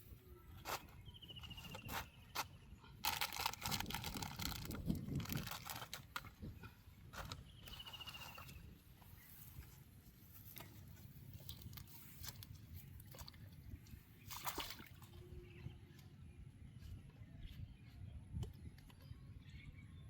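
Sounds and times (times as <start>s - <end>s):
water sloshing and dripping: 10.4s - 15.3s.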